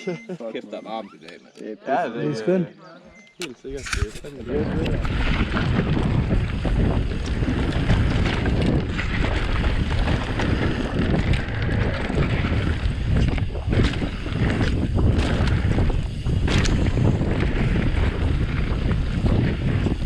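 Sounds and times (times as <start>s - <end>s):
wind buffeting microphone: 3.8s - 20.0s.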